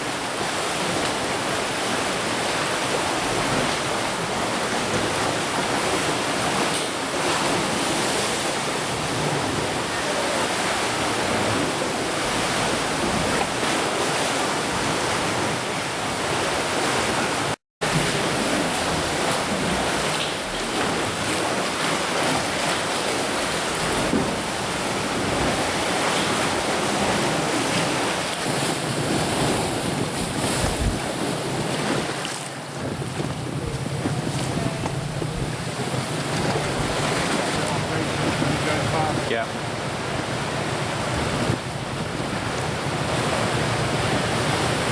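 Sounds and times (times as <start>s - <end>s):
sea washing: 0.0s - 44.9s
wind on microphone: 22.2s - 44.9s.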